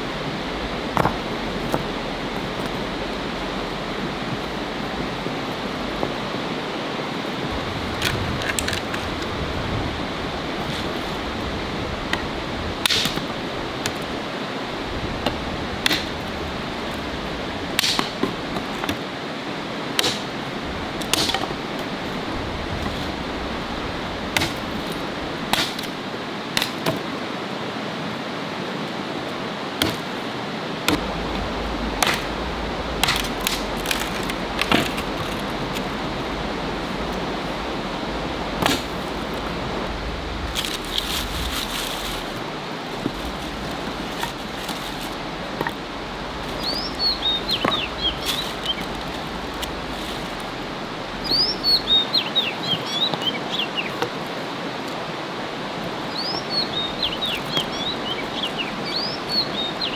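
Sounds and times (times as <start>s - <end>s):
wood fire crackling: 0.0s - 19.0s, 19.6s - 26.7s, 30.8s - 52.6s.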